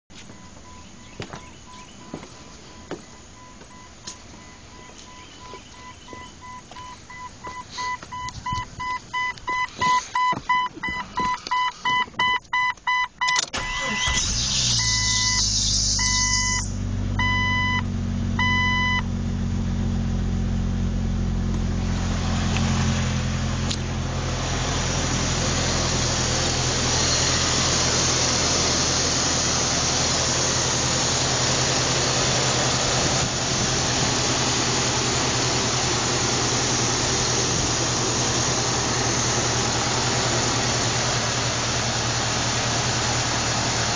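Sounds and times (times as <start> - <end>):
engine idling: 13.6 - 43.9
electronic chime beeping: 14.8 - 17.8, 18.4 - 19.0.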